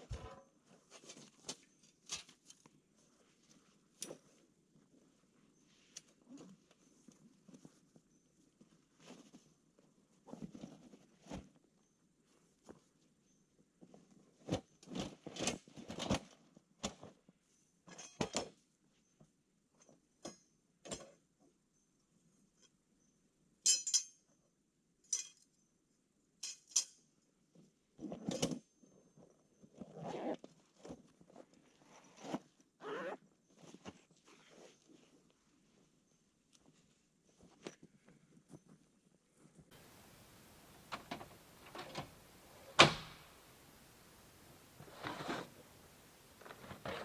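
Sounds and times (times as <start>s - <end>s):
camp gear clinking and rustling: 39.7s - 47.0s.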